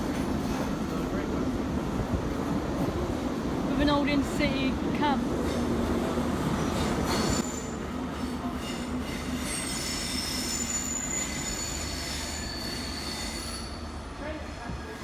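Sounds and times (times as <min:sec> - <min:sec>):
train wheels squealing: 0:06.6 - 0:15.0.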